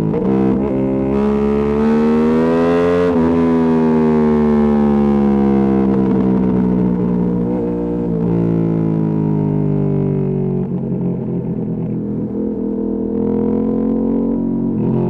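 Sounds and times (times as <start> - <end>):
motorcycle engine revving: 9.7 - 15.0.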